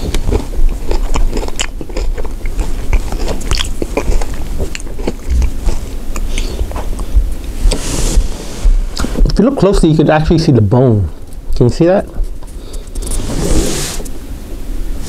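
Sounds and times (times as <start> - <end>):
person chewing crunchy food: 0.0 - 9.2.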